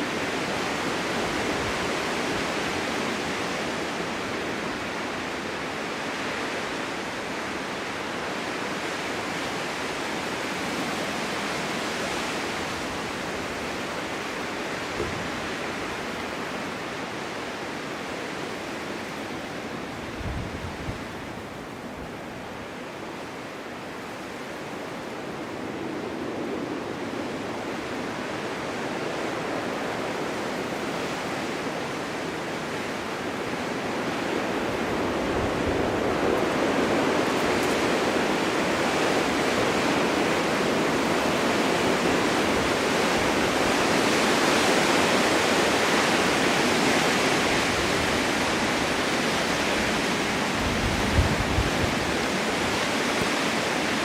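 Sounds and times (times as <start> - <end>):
wind blowing with rushing hiss: 0.0 - 54.0
wind buffeting microphone: 20.0 - 22.2, 33.0 - 54.0.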